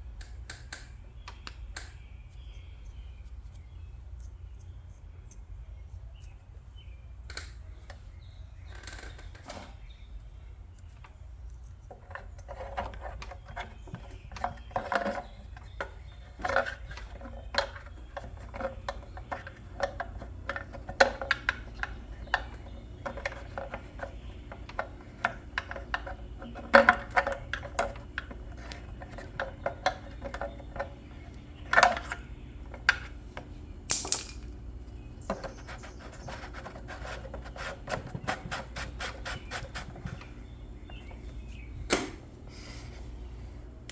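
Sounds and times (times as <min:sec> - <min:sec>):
steady low hum: 0:00.0 - 0:43.9
clicks and knocks of tools: 0:00.2 - 0:02.0, 0:07.2 - 0:08.0, 0:10.8 - 0:34.6.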